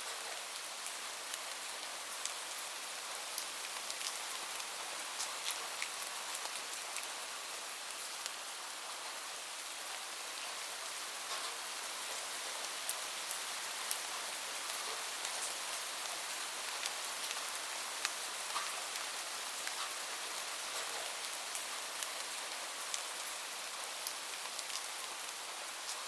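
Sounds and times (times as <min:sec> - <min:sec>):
steady rain falling: 0:00.0 - 0:26.0
close raindrops ticking: 0:02.2 - 0:07.1.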